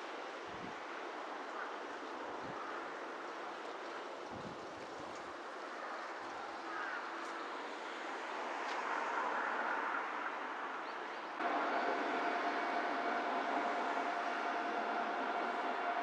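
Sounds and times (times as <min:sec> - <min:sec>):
electric train running: 0:11.4 - 0:16.0
steady whine: 0:11.4 - 0:16.0.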